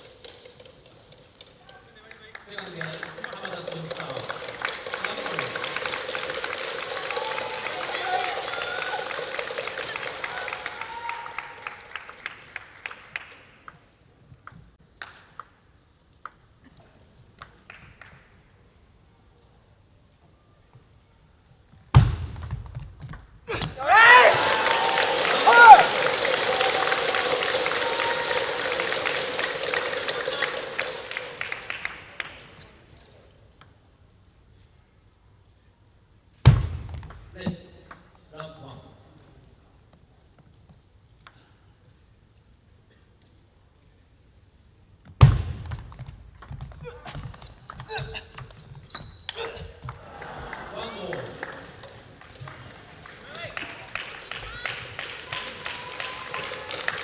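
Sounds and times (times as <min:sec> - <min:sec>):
crowd clapping rhythmically: 0:00.0 - 0:13.9, 0:23.8 - 0:32.8, 0:49.3 - 0:57.0.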